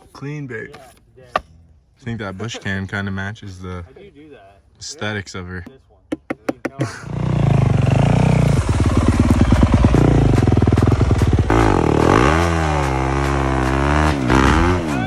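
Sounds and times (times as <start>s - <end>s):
dirt bike engine revving: 7.1s - 15.0s.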